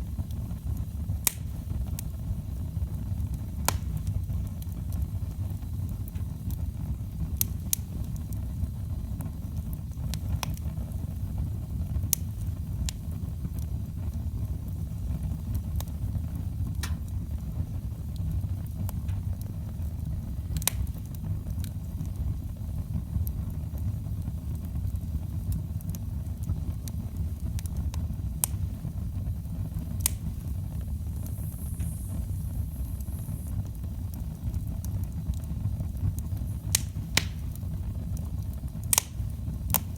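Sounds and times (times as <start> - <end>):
fire crackling and popping: 0.0 - 39.9
fire rumbling: 0.0 - 39.9
faint high hiss: 29.6 - 34.7.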